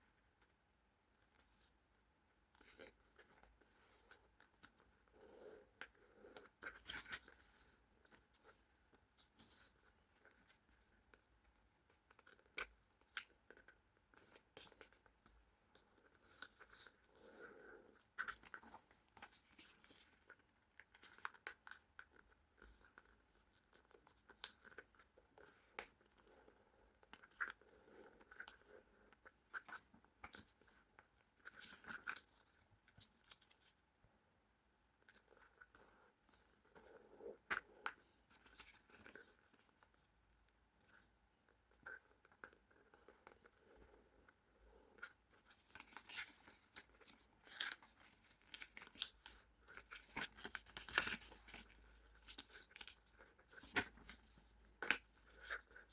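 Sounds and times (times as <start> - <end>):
paper being folded and creased: 45.0 - 55.9.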